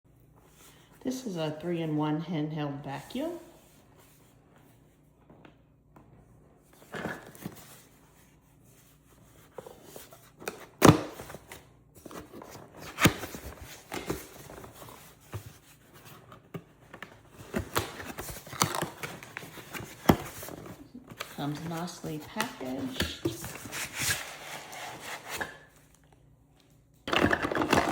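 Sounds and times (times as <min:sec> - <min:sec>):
packaging scraping and rustling: 0:08.8 - 0:26.0, 0:27.1 - 0:27.9.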